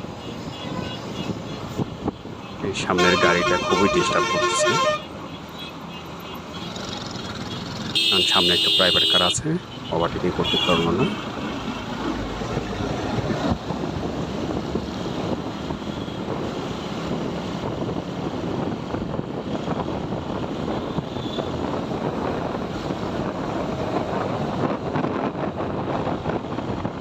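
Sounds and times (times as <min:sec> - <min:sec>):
road noise: 0:00.0 - 0:27.0
wind rushing over microphone: 0:12.0 - 0:27.0.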